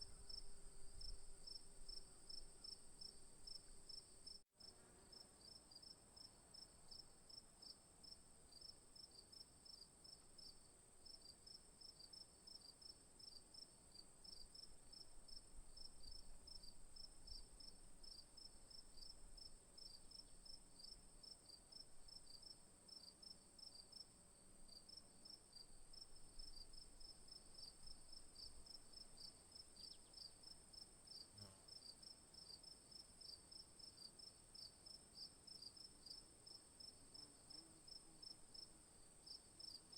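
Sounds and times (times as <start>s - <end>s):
insect chirps: 0.0s - 39.9s
high-pitched insect buzz: 31.2s - 31.7s.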